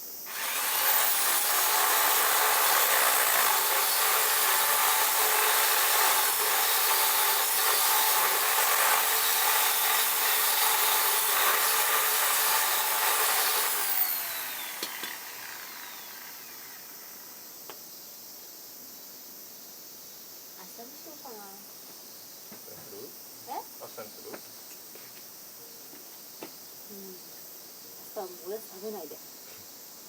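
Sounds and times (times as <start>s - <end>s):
power tool whining: 0.3s - 17.4s.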